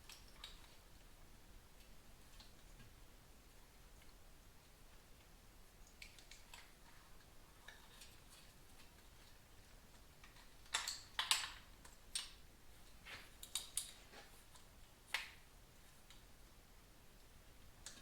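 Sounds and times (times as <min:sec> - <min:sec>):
sharp clicks and knocks from tools: 0:10.2 - 0:12.4.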